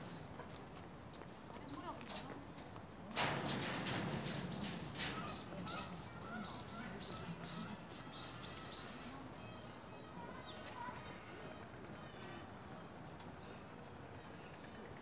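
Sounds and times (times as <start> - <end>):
bird chirping: 4.3 - 10.9.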